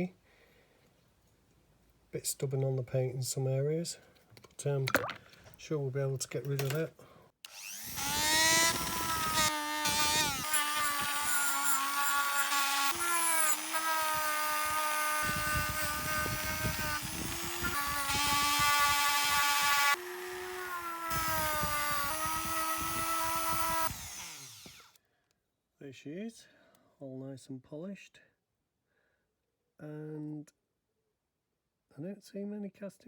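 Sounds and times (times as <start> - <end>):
rotary tool whining: 7.4 - 25.0.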